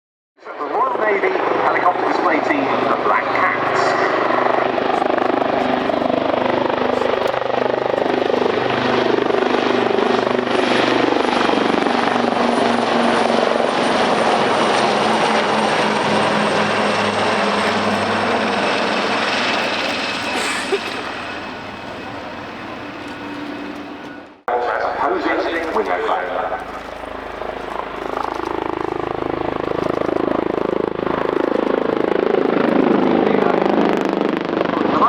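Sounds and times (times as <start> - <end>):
high turbine whine: 0.5 - 35.0
helicopter rotor beat: 0.6 - 35.0.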